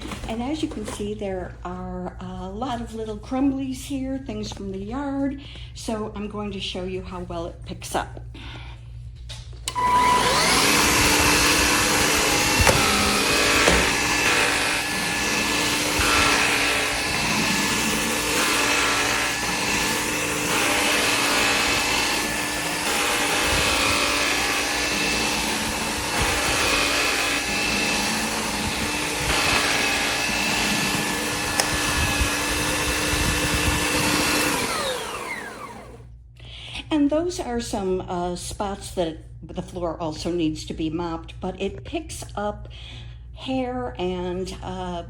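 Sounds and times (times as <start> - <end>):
stick vacuum running: 9.6 - 36.1
vacuum motor spinning down: 9.7 - 36.1.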